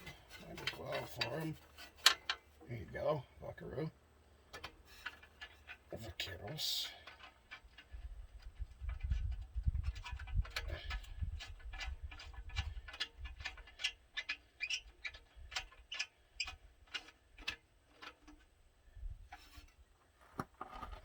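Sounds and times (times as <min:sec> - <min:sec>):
low rumbling handling noise: 0:00.0 - 0:13.6.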